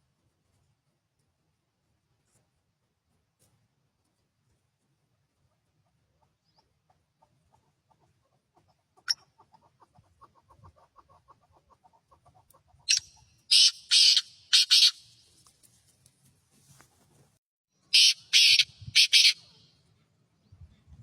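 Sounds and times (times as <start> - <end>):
bird soft rapid clucks: 5.3 - 15.5
bird harsh squawks: 12.9 - 15.1, 17.9 - 19.6.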